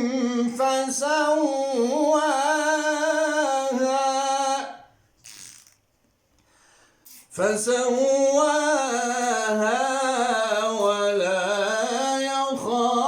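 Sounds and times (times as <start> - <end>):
man reciting melodically: 0.0 - 5.0, 7.3 - 13.0
short breath: 6.4 - 7.1.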